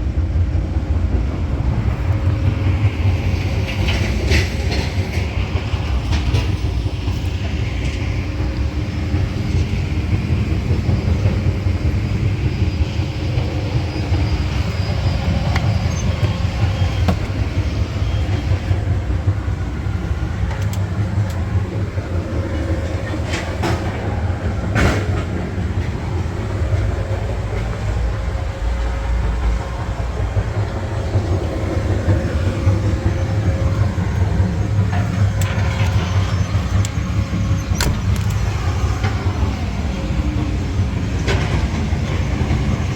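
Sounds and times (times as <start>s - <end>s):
diesel truck engine running: 1.0s - 42.9s.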